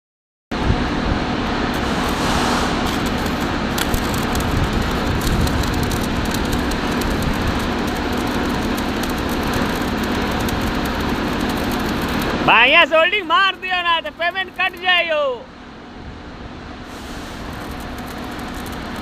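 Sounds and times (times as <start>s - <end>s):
low hum: 1.2s - 12.5s
electric welding arc crackling: 1.7s - 15.1s, 16.9s - 19.0s.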